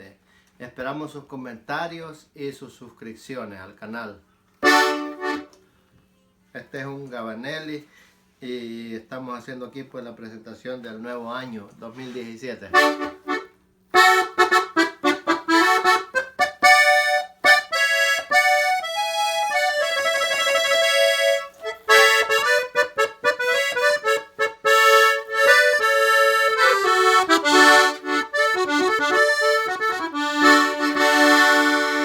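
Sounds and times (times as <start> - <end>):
accordion melody: 4.6 - 5.6, 12.7 - 32.0.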